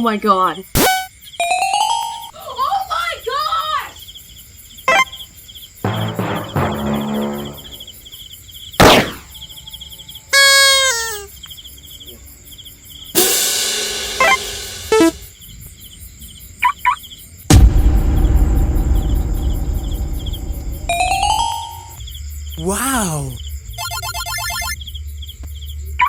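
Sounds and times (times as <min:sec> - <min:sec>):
crickets chirping: 0:00.0 - 0:26.0
noisy burst with blips: 0:14.2 - 0:15.2
quick electronic blips: 0:14.9 - 0:15.2
whoosh effect: 0:17.5 - 0:21.9
loud low rumble: 0:17.5 - 0:22.0.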